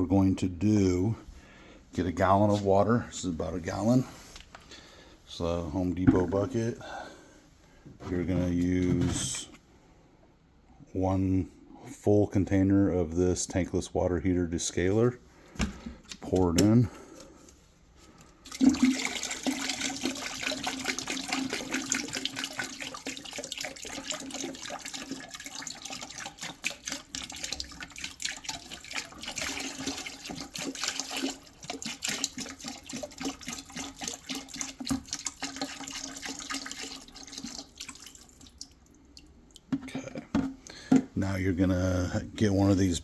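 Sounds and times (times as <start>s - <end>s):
liquid pouring into bucket: 18.4s - 40.0s.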